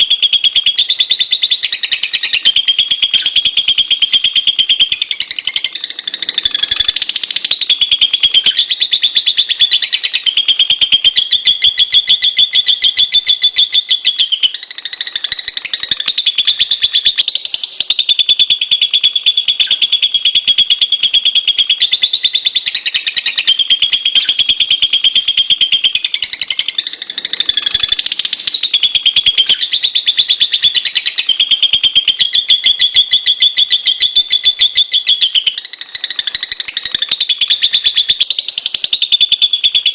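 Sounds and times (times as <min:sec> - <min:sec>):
lovebird chattering: 0:00.0 - 0:39.9.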